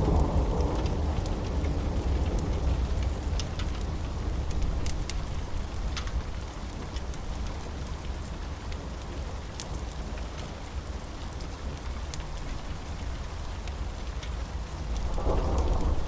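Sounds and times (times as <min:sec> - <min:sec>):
low thunder rumble: 0:00.0 - 0:05.7, 0:14.8 - 0:16.0
steady rain: 0:00.0 - 0:16.0
wood fire crackling: 0:00.0 - 0:16.0.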